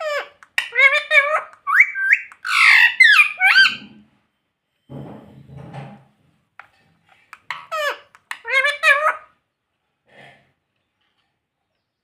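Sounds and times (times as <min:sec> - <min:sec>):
parakeet squawking: 0:00.0 - 0:03.9, 0:07.4 - 0:09.4.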